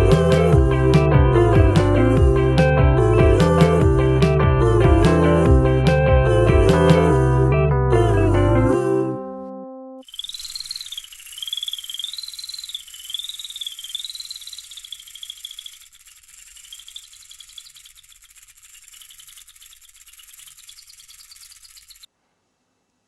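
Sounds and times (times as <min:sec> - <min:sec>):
insect-like chirring trill: 0:10.0 - 0:22.1.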